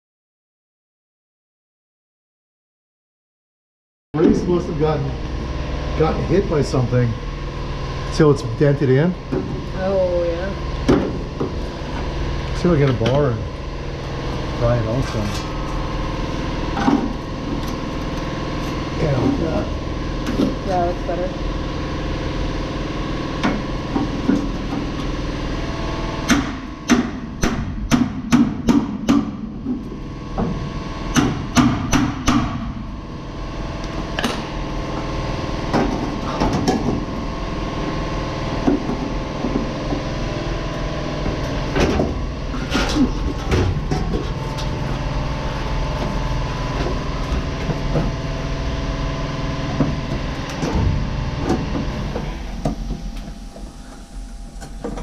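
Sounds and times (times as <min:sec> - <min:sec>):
steady hum: 0:04.2 - 0:55.0.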